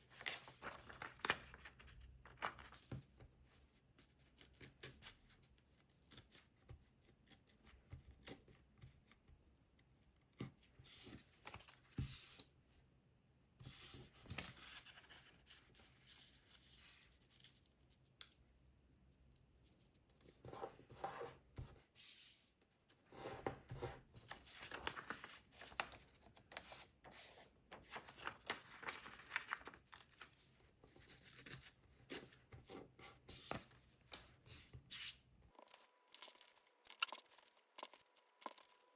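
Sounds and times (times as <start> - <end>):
paper rustling and crinkling: 0.0 - 3.3, 23.6 - 35.1.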